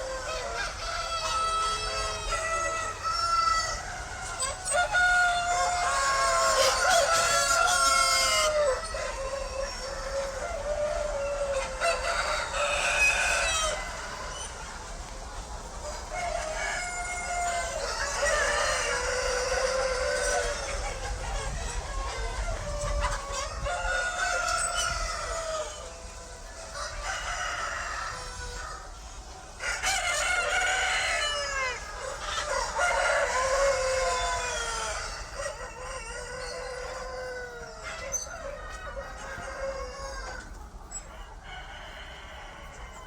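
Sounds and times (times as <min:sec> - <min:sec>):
rooster crowing: 0:00.0 - 0:14.5, 0:15.8 - 0:29.0, 0:29.6 - 0:43.0
chickens clucking: 0:00.0 - 0:43.0.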